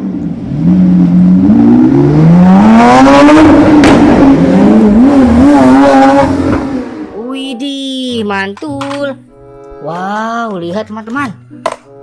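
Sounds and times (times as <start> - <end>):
race car engine revving: 0.0 - 7.3.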